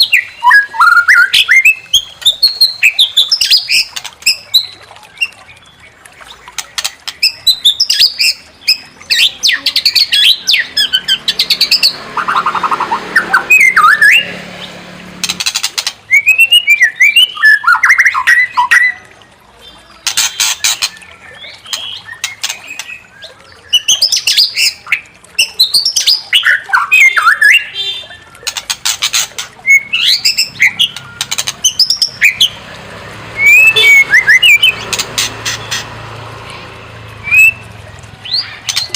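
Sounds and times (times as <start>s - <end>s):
bird singing whistled song: 0.0s - 5.9s, 16.1s - 19.1s, 29.6s - 32.6s, 33.4s - 34.8s, 37.2s - 37.6s
harsh rattling bird calls: 0.0s - 19.0s, 19.6s - 38.9s.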